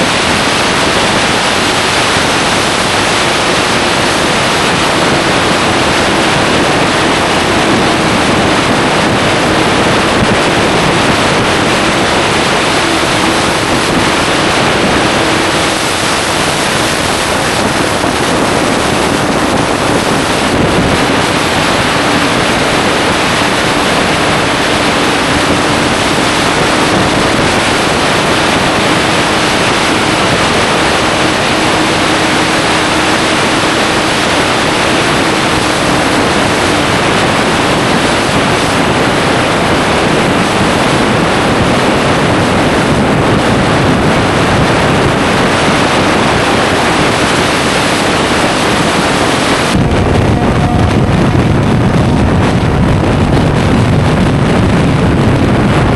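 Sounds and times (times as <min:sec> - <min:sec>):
motorcycle engine: 0:00.0 - 0:36.7
wind noise on microphone: 0:00.0 - 0:55.9.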